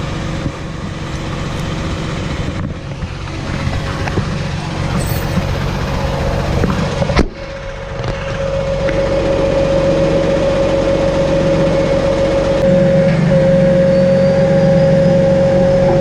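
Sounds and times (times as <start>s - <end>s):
truck engine idling: 0.0s - 16.0s
sharp metal clank: 5.0s - 5.6s.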